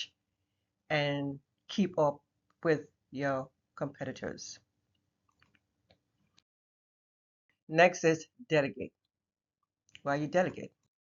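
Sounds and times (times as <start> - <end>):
faint small clicks: 4.9 - 6.5.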